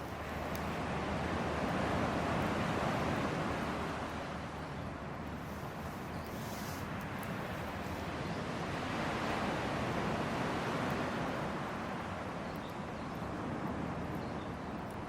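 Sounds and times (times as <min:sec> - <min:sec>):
campfire flames hissing: 0:00.0 - 0:04.2, 0:05.3 - 0:08.2
fire crackles: 0:00.0 - 0:15.0.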